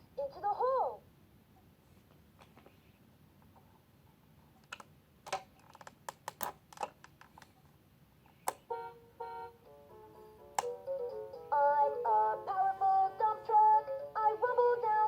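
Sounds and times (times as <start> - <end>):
plastic toy clicking and knocking: 4.6 - 7.5.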